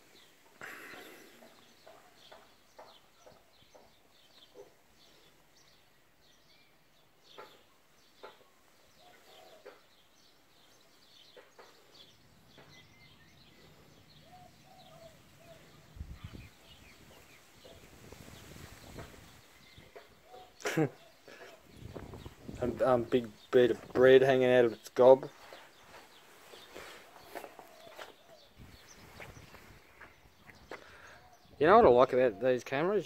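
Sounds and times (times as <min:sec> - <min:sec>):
faint bird chirps: 0:00.1 - 0:24.0.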